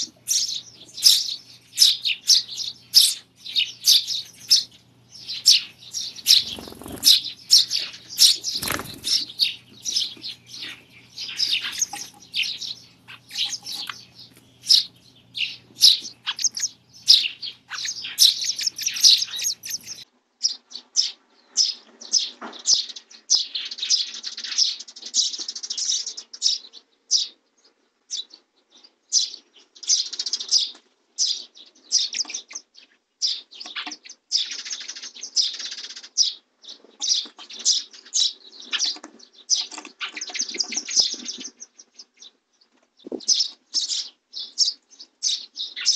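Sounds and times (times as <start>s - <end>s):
faint low hum: 0.0s - 20.0s
sparrows chirping: 0.0s - 45.9s.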